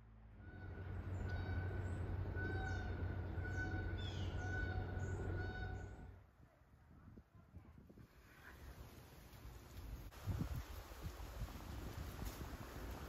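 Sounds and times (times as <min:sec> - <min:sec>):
low steady hum: 0:00.0 - 0:10.2
birds chirping and calling: 0:00.4 - 0:06.1.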